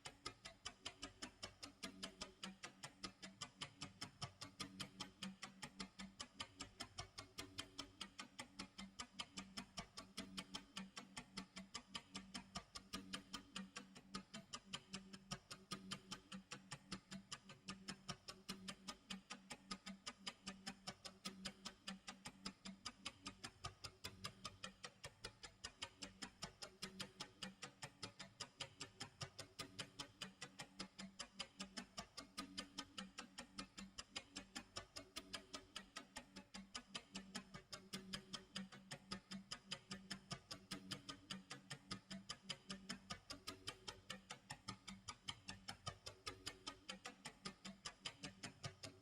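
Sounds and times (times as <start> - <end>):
clock ticking: 0.0 - 49.0.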